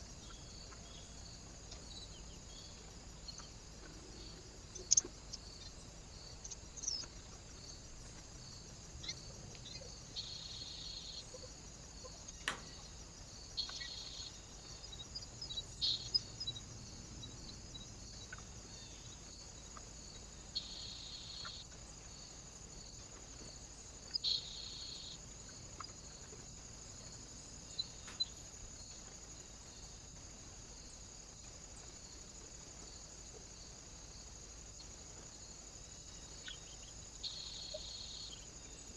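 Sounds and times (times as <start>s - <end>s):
bird chirps: 1.8s - 7.4s, 13.6s - 16.7s, 36.4s - 38.9s.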